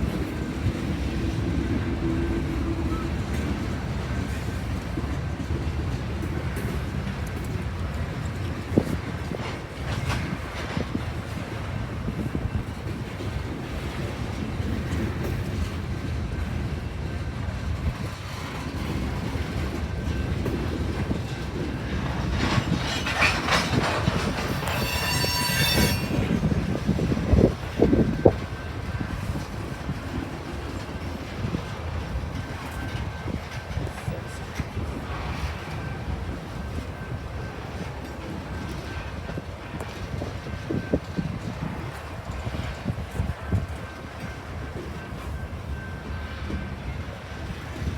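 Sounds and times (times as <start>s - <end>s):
train rolling past: 0.0s - 47.9s
wheels clicking over rail joints: 17.7s - 46.4s
high-pitched wheel squeal: 22.6s - 26.4s.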